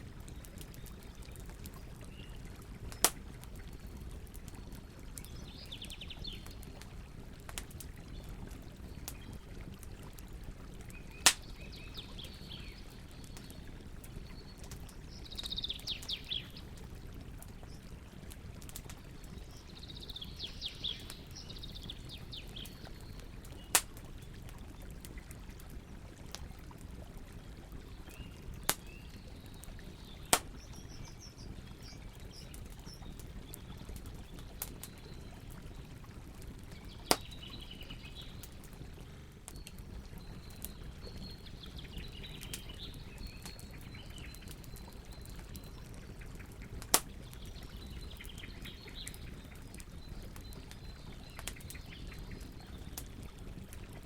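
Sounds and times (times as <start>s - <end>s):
campfire crackling: 0.0s - 54.0s
birds chirping: 19.2s - 23.8s, 39.5s - 46.6s.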